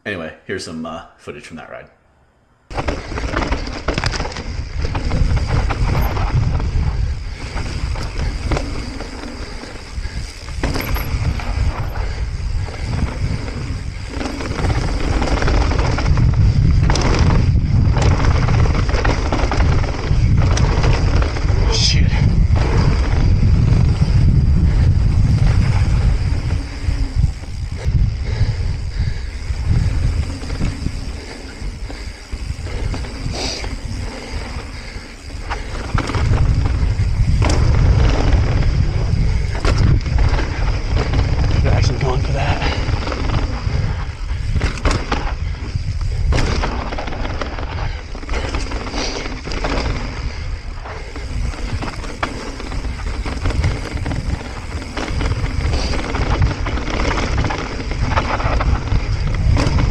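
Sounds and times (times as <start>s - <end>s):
bike knocks and clatters: 2.7s - 21.5s, 35.4s - 43.7s, 44.3s - 50.4s, 51.0s - 59.9s
bike rolling rumble: 2.7s - 59.9s
tyre and trail noise: 2.7s - 59.9s
wind buffeting microphone: 2.7s - 59.9s
bike knocks: 10.5s - 11.3s, 37.0s - 38.3s, 46.0s - 47.0s.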